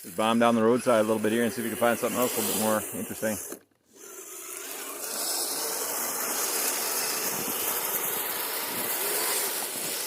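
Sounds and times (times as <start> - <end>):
toy vehicle motor whirring: 0.0 - 10.0
tracks churning snow: 4.7 - 10.0.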